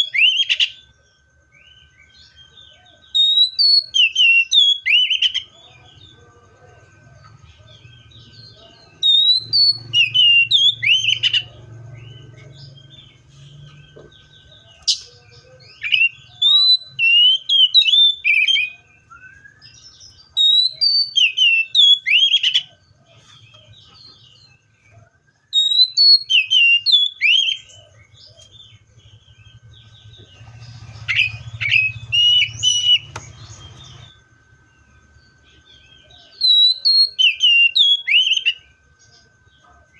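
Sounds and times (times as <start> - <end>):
bird singing whistled phrases: 0.0 - 0.9, 3.0 - 5.6, 8.3 - 11.5, 14.5 - 22.8, 25.4 - 28.6, 31.0 - 34.2, 36.2 - 38.7.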